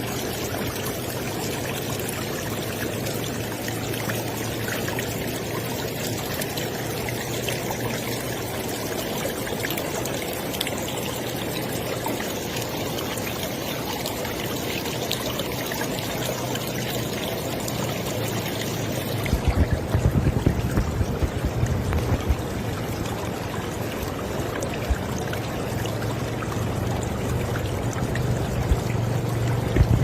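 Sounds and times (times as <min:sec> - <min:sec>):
river water flowing: 0:00.0 - 0:30.0
uneven low thumps: 0:19.2 - 0:22.9, 0:29.6 - 0:30.0.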